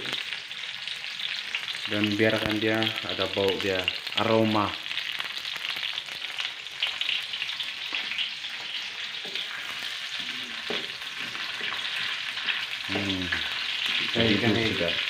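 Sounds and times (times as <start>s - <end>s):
garlic sizzling in hot oil: 0.0s - 15.0s.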